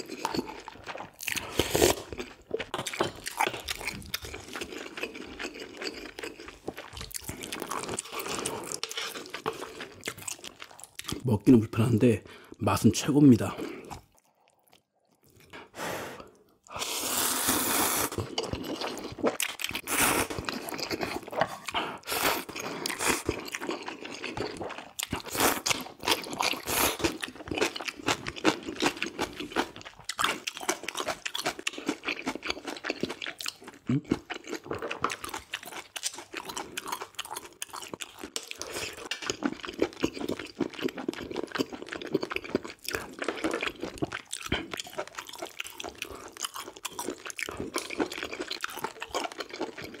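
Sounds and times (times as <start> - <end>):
chewing and crunching food: 0.0 - 50.0.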